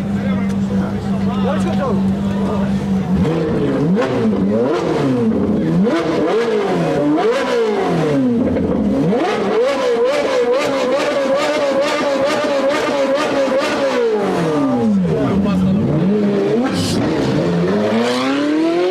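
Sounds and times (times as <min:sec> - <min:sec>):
car exhaust revving: 0:00.0 - 0:18.9.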